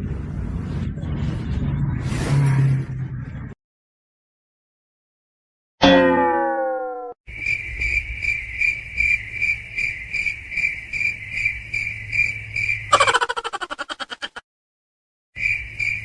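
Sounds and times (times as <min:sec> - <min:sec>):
short falling pitched tone: 0:05.8 - 0:07.2
cricket chirping: 0:07.3 - 0:14.2, 0:15.4 - 0:16.0.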